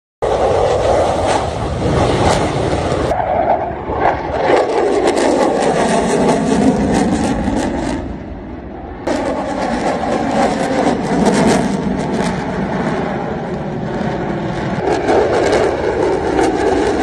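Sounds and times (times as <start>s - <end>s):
loud vehicle noise: 0.2s - 3.7s.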